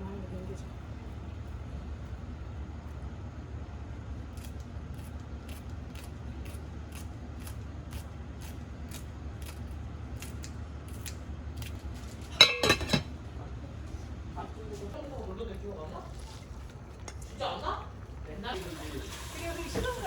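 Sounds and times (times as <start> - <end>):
low steady hum: 0.0 - 20.0
metal dishes clattering: 12.3 - 13.2.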